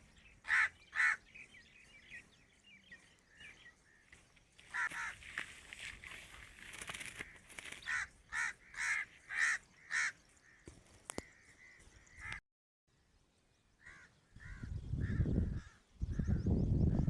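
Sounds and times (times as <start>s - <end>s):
wind on microphone rumble: 14.4s - 17.0s.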